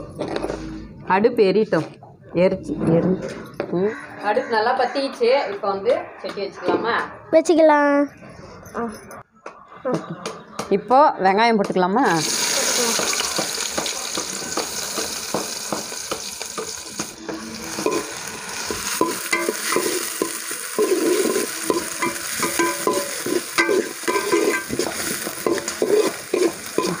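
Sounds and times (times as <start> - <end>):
onions sizzling in a pan: 12.2 - 27.0
spatula scraping a pan: 17.2 - 27.0.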